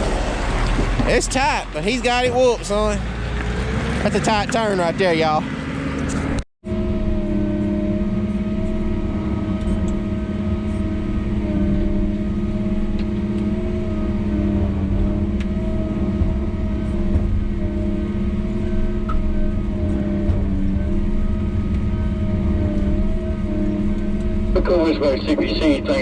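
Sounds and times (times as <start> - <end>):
diesel engine humming: 0.0 - 26.0.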